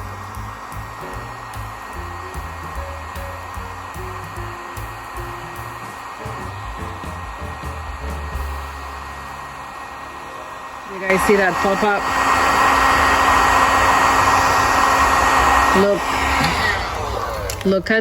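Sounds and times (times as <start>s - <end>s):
background music: 0.0s - 12.2s
heat gun blowing: 0.0s - 18.0s.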